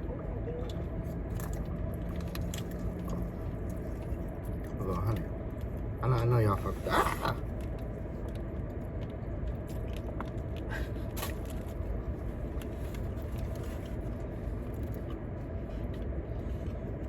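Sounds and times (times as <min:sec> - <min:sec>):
car idling from inside cabin: 0:00.0 - 0:08.2.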